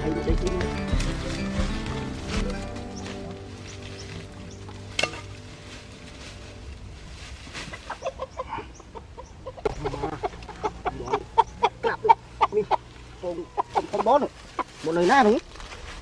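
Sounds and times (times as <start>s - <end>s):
faint background tune: 0.0s - 7.5s
chicken clucking: 7.7s - 14.8s.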